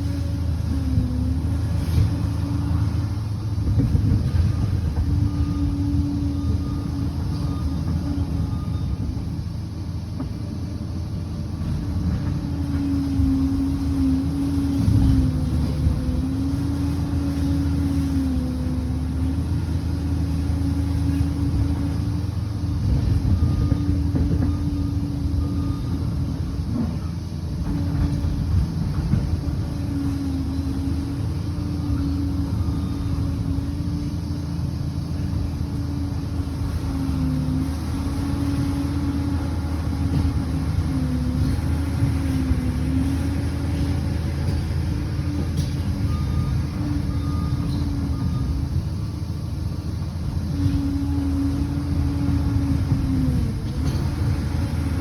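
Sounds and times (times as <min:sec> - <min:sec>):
bulldozer diesel engine working: 0:00.0 - 0:55.0.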